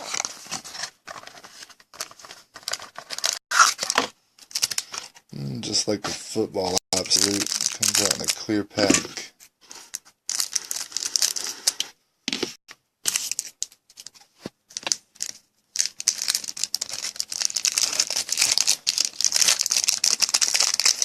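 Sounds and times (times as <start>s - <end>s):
plastic wrapper tearing and crinkling: 2.7s - 5.0s, 7.0s - 8.6s, 10.3s - 11.6s, 14.8s - 21.0s.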